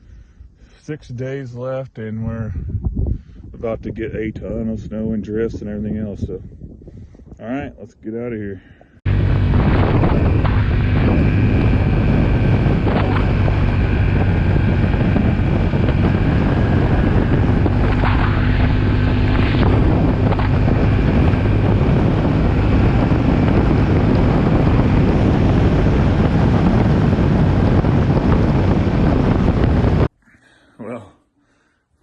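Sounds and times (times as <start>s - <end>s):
wind rumble on microphone: 2.1s - 30.1s
vehicle engine running: 9.1s - 30.1s.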